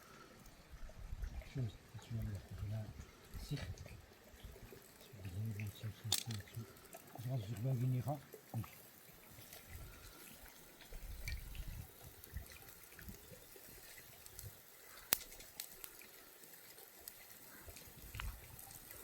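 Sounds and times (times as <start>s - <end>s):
water trickling and dripping: 0.0s - 19.0s
small ticks: 4.6s - 19.0s.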